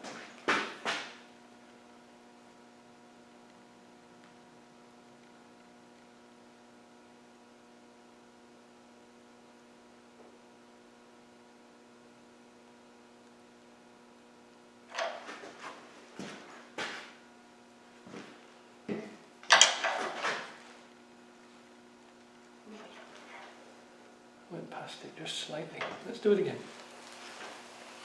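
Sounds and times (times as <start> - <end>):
faint electrical hum: 0.0 - 28.0.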